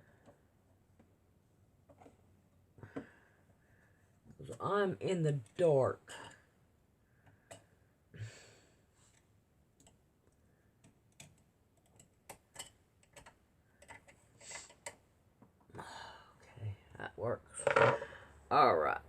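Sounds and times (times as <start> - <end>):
faint clicks and light taps: 9.1 - 15.7.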